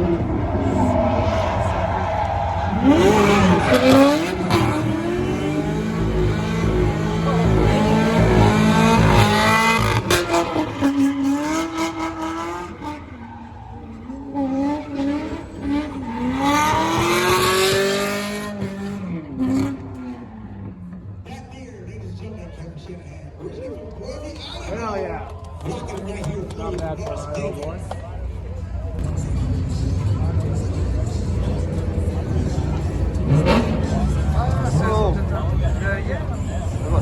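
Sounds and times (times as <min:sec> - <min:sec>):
car engine revving hard: 0:00.0 - 0:13.6, 0:14.2 - 0:21.0, 0:31.2 - 0:36.1.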